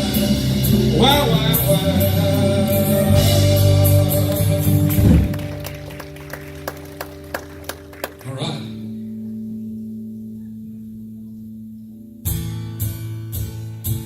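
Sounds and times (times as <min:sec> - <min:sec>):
person singing: 0:00.0 - 0:05.4
live worship band playing: 0:00.0 - 0:10.2.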